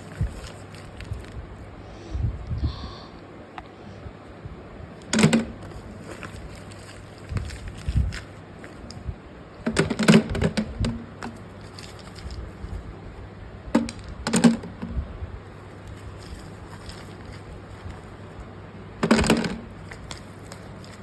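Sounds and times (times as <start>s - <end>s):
balls clicking and rattling: 9.6s - 12.5s, 13.7s - 14.9s.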